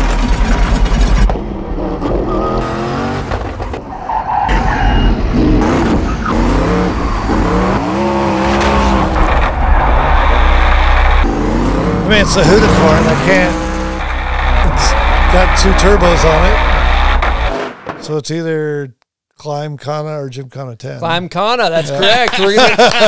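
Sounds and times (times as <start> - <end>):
car engine revving hard: 5.3 - 17.8.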